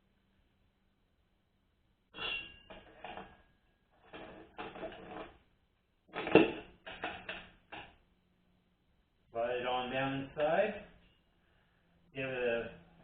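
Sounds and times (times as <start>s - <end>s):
metallic ring: 2.1s - 3.2s.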